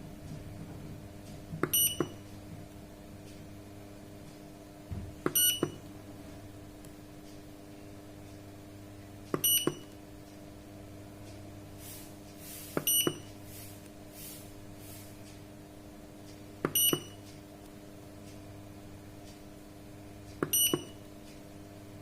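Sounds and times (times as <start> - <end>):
low electrical hum: 0.0 - 22.0
short high beeps: 1.8 - 2.1, 5.4 - 5.8, 9.4 - 9.9, 12.9 - 13.3, 16.8 - 17.2
button clicks: 5.2 - 5.8, 9.3 - 10.0, 16.6 - 17.2, 20.4 - 20.9.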